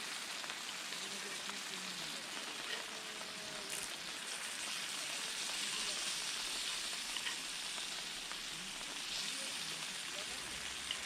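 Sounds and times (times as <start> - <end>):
rain falling: 0.0 - 4.2, 6.8 - 11.0.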